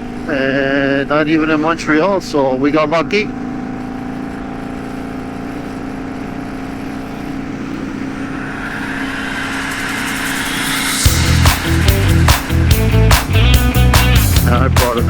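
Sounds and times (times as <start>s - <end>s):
motorcycle engine cruising: 0.0s - 14.6s
wind rushing: 7.6s - 13.1s.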